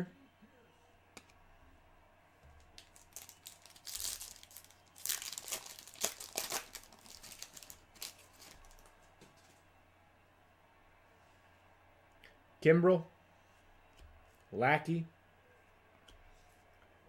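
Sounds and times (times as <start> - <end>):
foil wrapper tearing and crinkling: 2.7 - 8.9.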